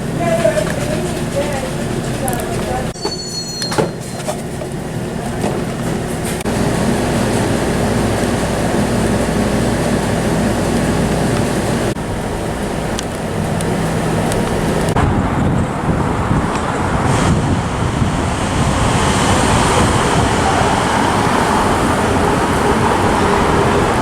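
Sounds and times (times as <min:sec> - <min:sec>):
subway train rumbling on track: 0:00.0 - 0:24.0
higher tone: 0:03.0 - 0:04.3.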